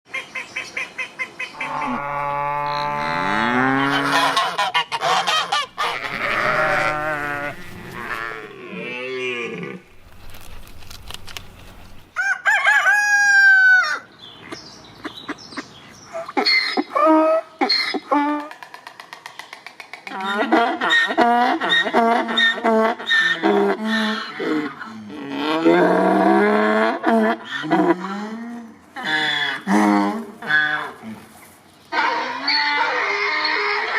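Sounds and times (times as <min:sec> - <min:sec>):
poultry calling: 0:00.1 - 0:12.1, 0:31.9 - 0:33.9.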